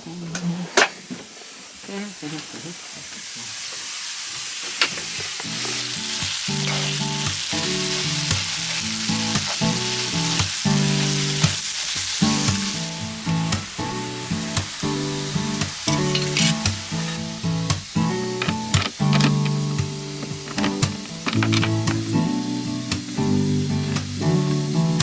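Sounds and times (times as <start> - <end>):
food sizzling in a pan: 0.7 - 25.0
music with plucked chords: 5.6 - 11.6, 12.2 - 25.0.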